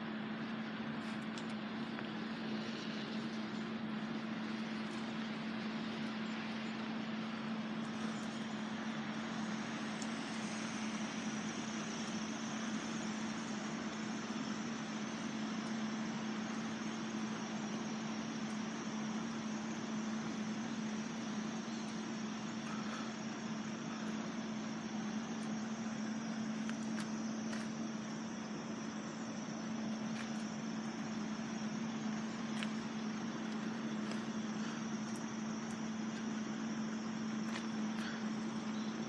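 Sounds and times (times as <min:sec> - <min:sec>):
vehicle engine idling: 0:00.0 - 0:39.0.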